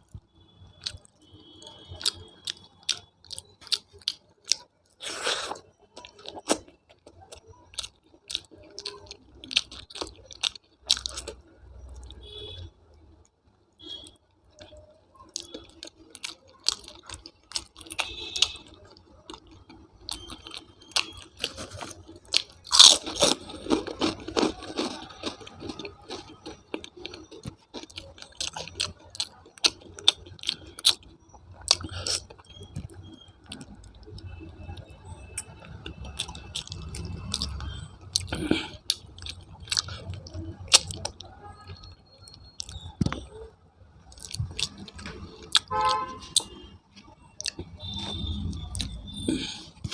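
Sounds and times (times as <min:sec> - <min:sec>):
person chewing food: 0:00.1 - 0:13.2, 0:13.8 - 0:49.9
food crunching: 0:00.1 - 0:49.9
mouth clicks: 0:25.8 - 0:43.5.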